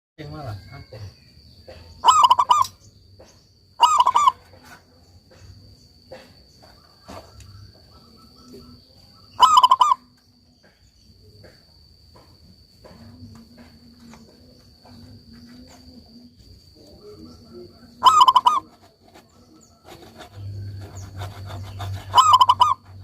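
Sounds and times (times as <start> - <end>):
high insect trill: 0.2 - 23.0
dove cooing: 1.7 - 2.7, 3.8 - 4.8, 9.4 - 10.1, 16.8 - 23.0.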